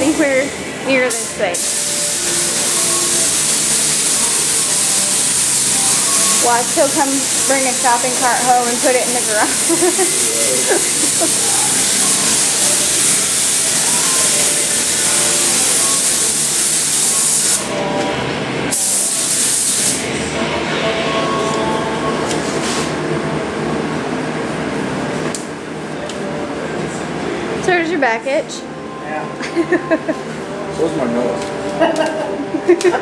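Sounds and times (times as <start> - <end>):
spray gun hissing: 1.1 - 17.7, 18.7 - 20.0.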